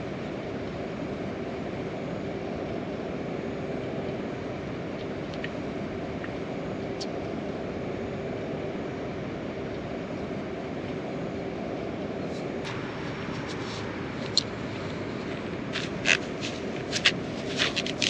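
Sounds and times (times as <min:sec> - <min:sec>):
faint steady hum: 0:00.0 - 0:18.0
steady rushing noise: 0:11.8 - 0:18.0.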